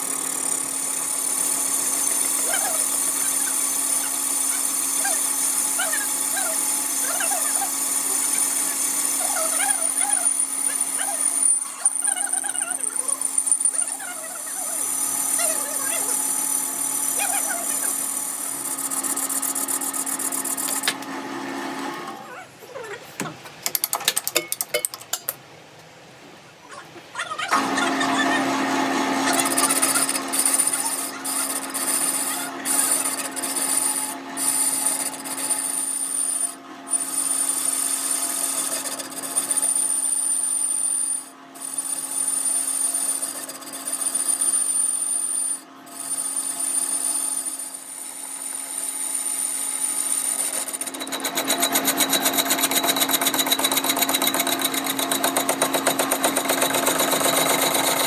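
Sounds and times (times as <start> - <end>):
power tool abrading metal: 0.0 - 21.1, 27.6 - 58.0.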